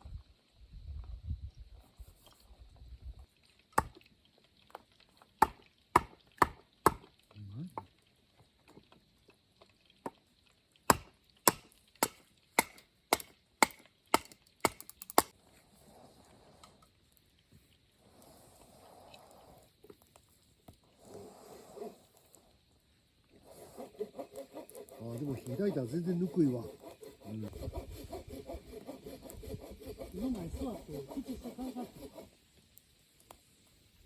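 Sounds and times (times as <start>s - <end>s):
hatchet chopping firewood: 3.8s - 4.0s, 5.4s - 7.2s, 10.9s - 15.3s, 23.8s - 25.6s, 26.2s - 32.3s.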